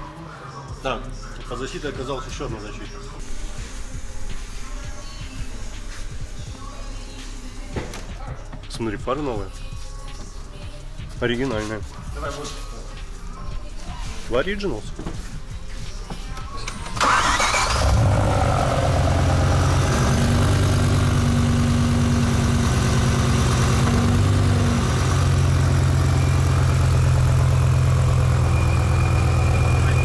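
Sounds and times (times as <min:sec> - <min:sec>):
car engine starting and idling: 0:16.4 - 0:30.0.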